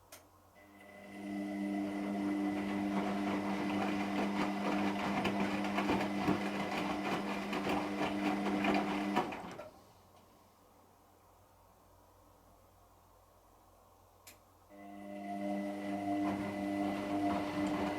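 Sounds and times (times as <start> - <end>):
washing machine running: 0.8 - 9.7, 14.8 - 17.9.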